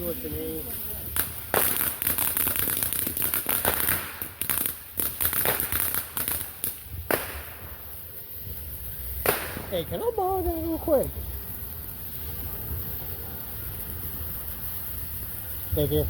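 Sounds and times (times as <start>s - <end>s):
fireworks popping and crackling: 0.0s - 16.0s.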